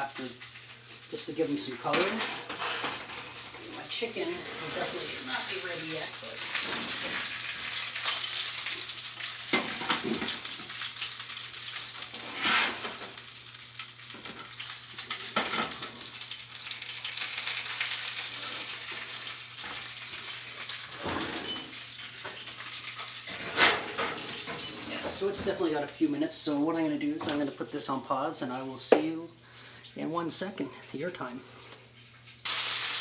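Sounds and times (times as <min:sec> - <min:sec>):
chicken sizzling in a pan: 0:00.0 - 0:25.3, 0:32.4 - 0:33.0.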